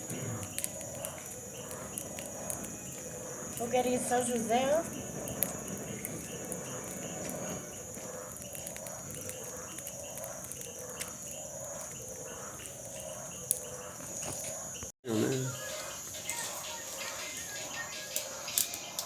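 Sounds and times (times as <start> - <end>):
fire popping: 0.0 - 14.9, 15.5 - 19.0
bonfire crackling: 0.0 - 19.0
insects trilling: 0.0 - 19.0.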